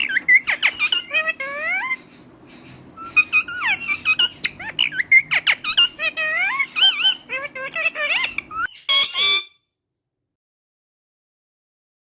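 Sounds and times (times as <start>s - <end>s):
parrot chattering and whistling: 0.0s - 9.6s.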